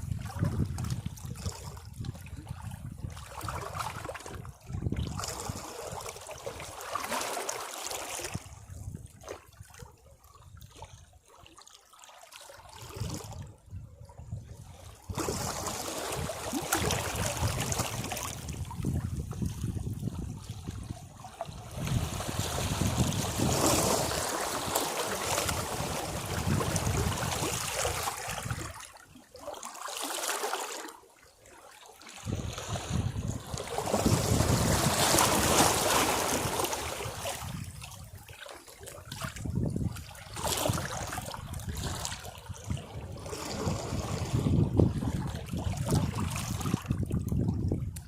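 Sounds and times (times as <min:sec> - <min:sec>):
sea waves washing against rocks: 0:15.1 - 0:20.0, 0:21.6 - 0:28.8, 0:32.2 - 0:37.8.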